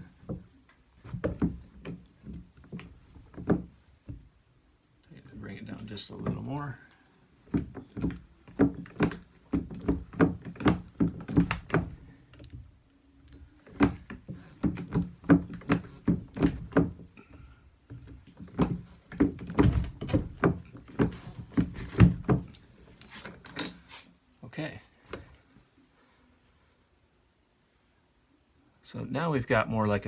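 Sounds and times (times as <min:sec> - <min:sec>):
rolling mill clunking: 0:13.3 - 0:22.6.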